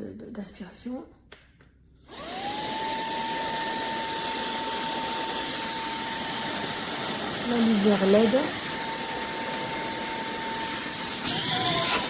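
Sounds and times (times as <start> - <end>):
handheld vacuum cleaner whining: 2.0 - 12.0.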